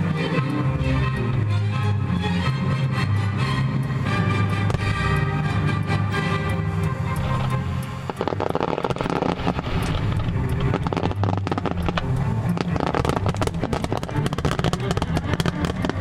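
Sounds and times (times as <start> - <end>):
low rumble: 0.0 - 16.0
fireworks crackling and popping: 3.9 - 16.0.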